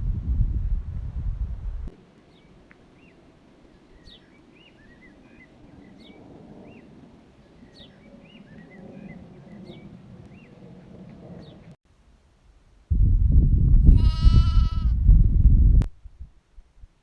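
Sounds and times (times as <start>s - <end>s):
wind buffeting microphone: 0.0s - 2.0s, 4.0s - 11.8s, 12.9s - 16.9s
small birds chirping: 2.3s - 10.6s.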